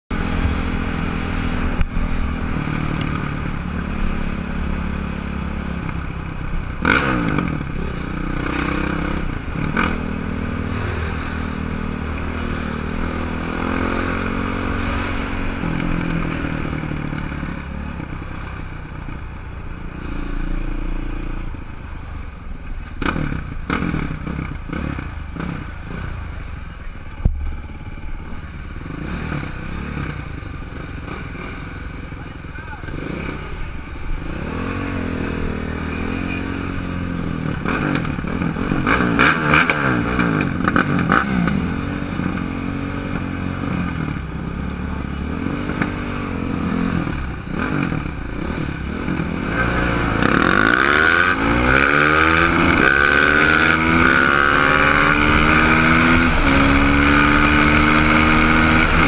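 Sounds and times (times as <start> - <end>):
dirt bike engine revving: 6.8 - 17.7, 32.9 - 44.3, 45.2 - 59.0.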